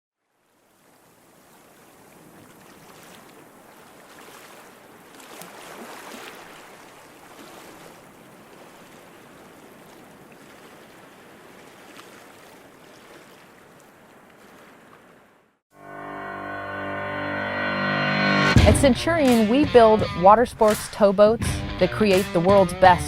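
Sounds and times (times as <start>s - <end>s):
water rushing and splashing: 0.2s - 15.6s.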